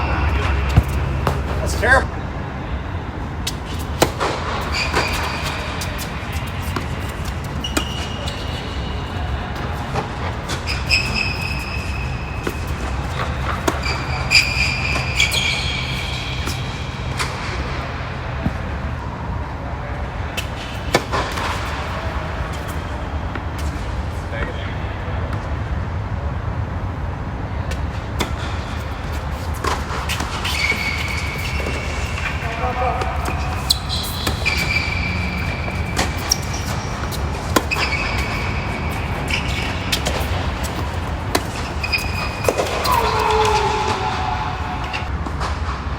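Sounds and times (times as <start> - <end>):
high shoe squeaks: 0.0 - 2.0, 3.5 - 17.7, 28.2 - 45.1
tennis balls struck with rackets: 0.0 - 2.0, 3.4 - 18.7, 20.4 - 22.8, 27.7 - 44.1
traffic rumble: 0.0 - 45.9.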